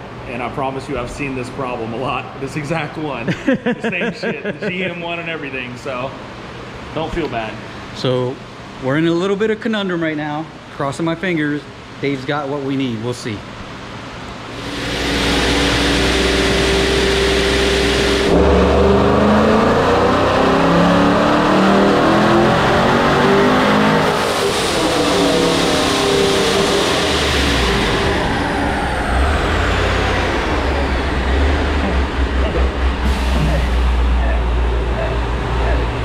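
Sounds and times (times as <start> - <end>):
high whine winding down: 14.3 - 36.0
engine revving at full throttle: 14.5 - 36.0.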